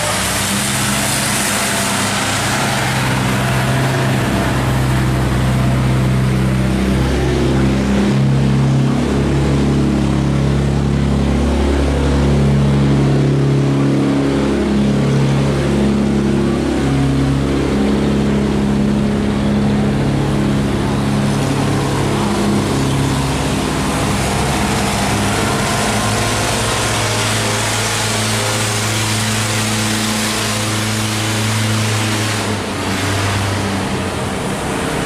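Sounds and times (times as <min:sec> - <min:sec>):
boat engines humming: 0:00.0 - 0:35.0.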